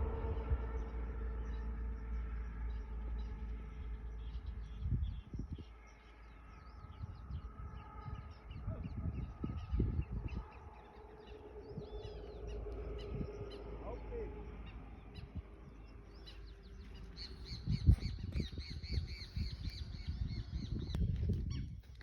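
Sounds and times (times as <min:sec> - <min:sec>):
dull low bumps: 0:00.0 - 0:05.7
steady low rumble: 0:00.0 - 0:21.9
small birds chirping: 0:00.0 - 0:22.0.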